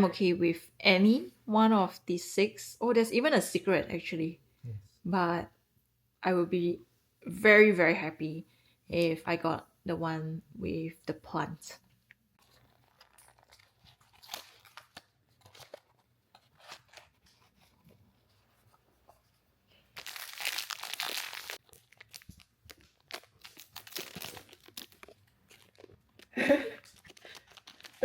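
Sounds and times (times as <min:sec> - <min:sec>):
packaging crinkling: 0:12.4 - 0:17.5, 0:19.9 - 0:28.0
packaging rustling and clicking: 0:12.4 - 0:17.5, 0:20.0 - 0:28.0
packaging tearing: 0:12.4 - 0:17.5, 0:20.0 - 0:28.0.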